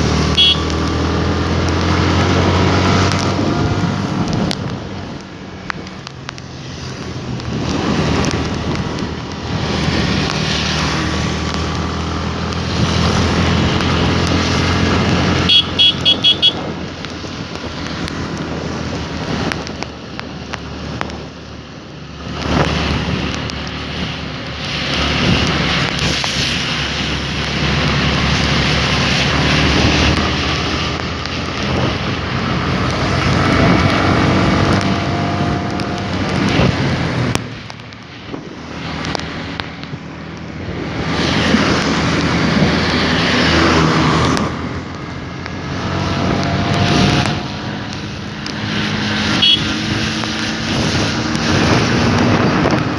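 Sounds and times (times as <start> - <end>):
wind and road noise: 0.0 - 52.9
horn beeps: 0.3 - 0.8, 15.5 - 16.7, 49.4 - 49.8.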